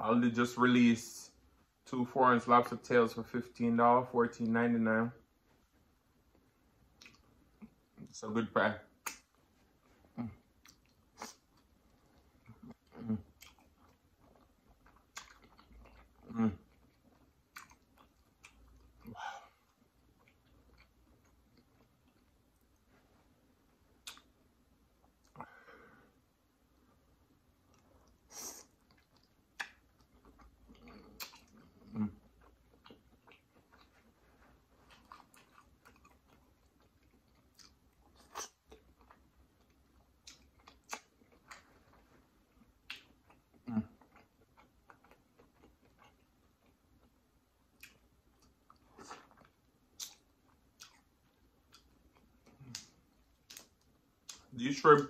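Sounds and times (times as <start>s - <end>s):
person chewing: 6.2s - 8.1s, 9.0s - 55.0s
mouth clicks and smacks: 6.3s - 8.1s, 8.9s - 22.7s, 23.9s - 25.5s, 27.6s - 34.2s, 34.8s - 55.0s.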